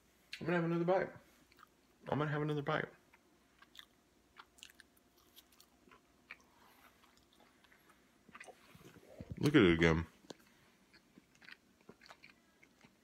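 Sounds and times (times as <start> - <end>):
faint chewing clicks: 3.1 - 9.6, 10.2 - 13.0.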